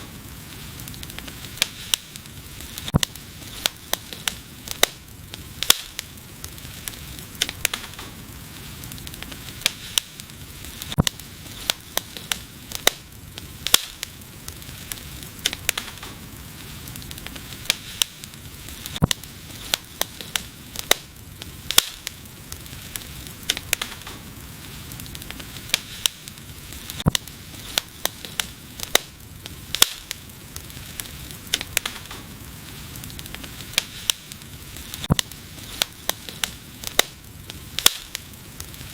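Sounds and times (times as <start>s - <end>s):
low hiss of burning: 0.0s - 38.9s
wood fire popping and snapping: 0.0s - 38.9s.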